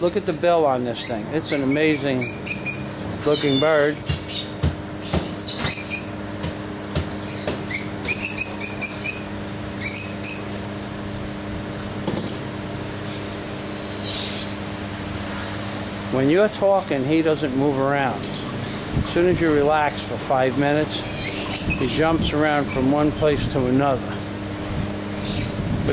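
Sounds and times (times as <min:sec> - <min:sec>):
small birds chirping: 0:00.0 - 0:06.4, 0:07.0 - 0:11.0, 0:12.1 - 0:14.7, 0:15.3 - 0:16.0, 0:17.4 - 0:18.9, 0:20.3 - 0:23.4, 0:25.1 - 0:25.9
low mechanical hum: 0:00.0 - 0:25.9.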